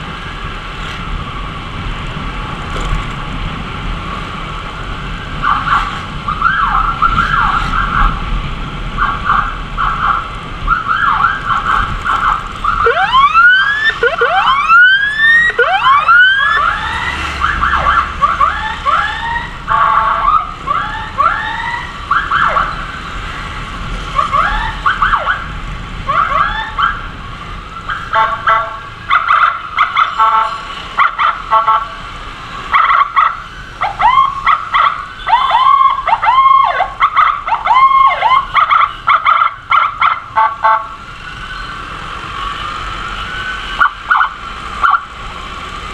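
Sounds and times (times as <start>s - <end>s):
motorcycle road noise: 0.0s - 45.9s
emergency siren yelping: 5.4s - 8.2s, 9.0s - 23.0s, 24.1s - 27.2s, 32.7s - 45.2s.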